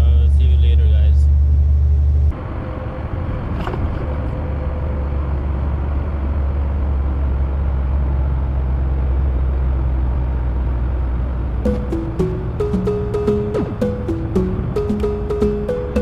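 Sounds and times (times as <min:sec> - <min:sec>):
truck engine and road rumble: 0:00.0 - 0:11.6.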